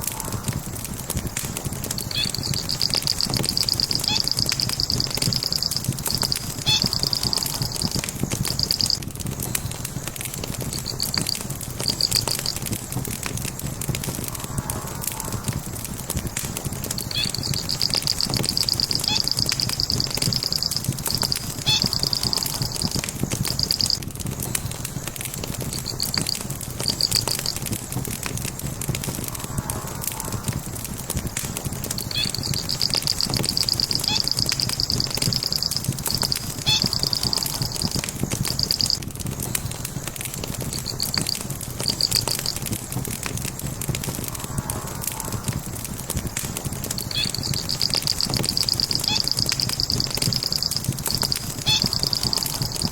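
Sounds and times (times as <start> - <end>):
wood fire crackling: 0.0 - 52.9
high pulsed chirping trill: 2.1 - 9.0, 10.7 - 12.6, 17.0 - 24.0, 25.7 - 27.7, 32.1 - 39.0, 40.7 - 42.7, 47.1 - 52.9.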